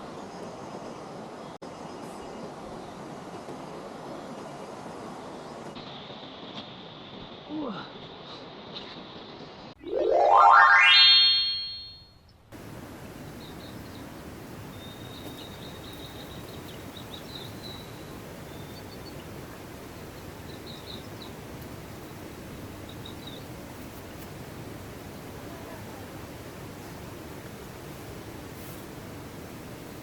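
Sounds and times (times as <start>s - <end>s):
high short chirps: 9.8s - 12.0s.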